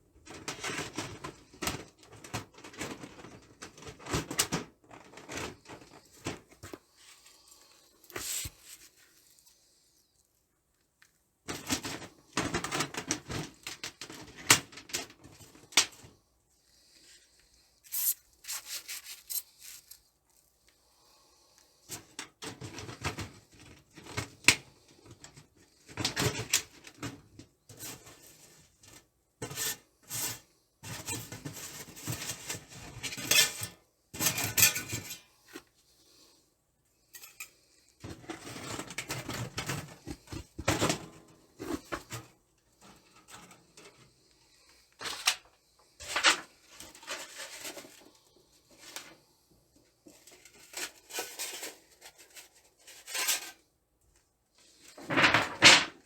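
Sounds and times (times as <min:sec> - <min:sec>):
metal scraping on metal: 0:29.4 - 0:35.3.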